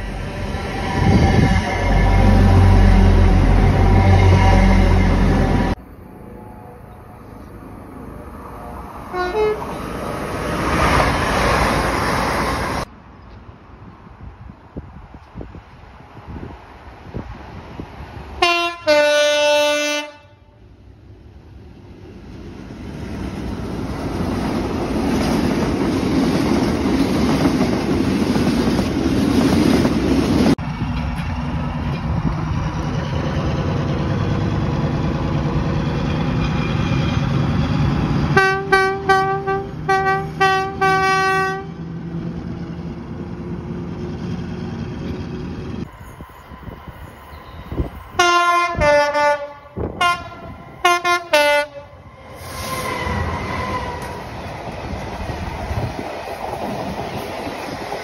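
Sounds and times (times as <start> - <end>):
train rumbling: 0.0 - 58.0
train horn blasts: 0.5 - 5.8, 9.1 - 9.8, 18.4 - 20.6, 38.3 - 41.8, 47.4 - 52.5
train horn short toots: 9.1 - 9.7, 18.4 - 20.5, 38.4 - 41.8, 47.4 - 52.0.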